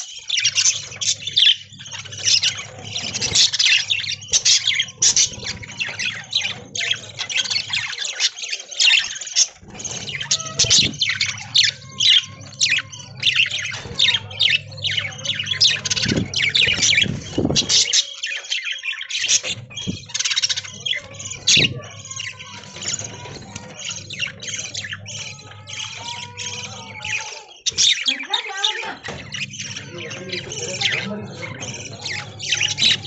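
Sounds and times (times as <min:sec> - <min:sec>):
budgerigars chattering: 0:00.0 - 0:33.0.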